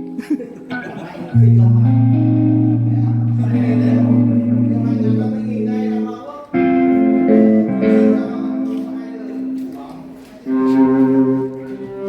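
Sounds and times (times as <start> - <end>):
electric guitar chords: 0.0 - 12.0
low sustained bass note: 1.4 - 6.1.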